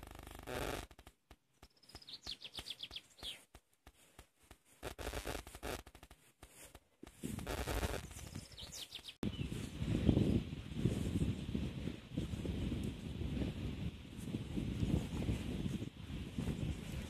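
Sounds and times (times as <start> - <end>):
songbird trilling: 1.7 - 3.4, 8.1 - 9.5.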